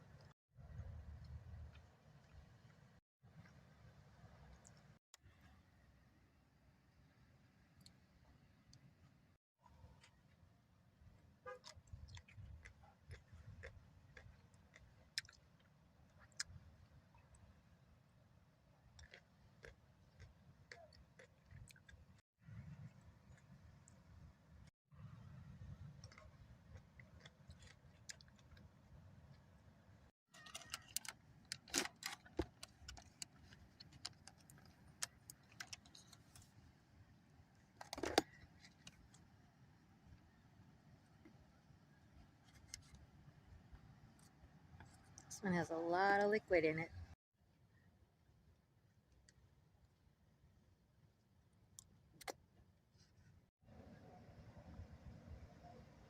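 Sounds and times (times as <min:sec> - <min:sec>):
chewing food: 0:11.6 - 0:17.6, 0:18.8 - 0:24.7, 0:25.7 - 0:29.4
things handled clicking and tapping: 0:37.8 - 0:39.1.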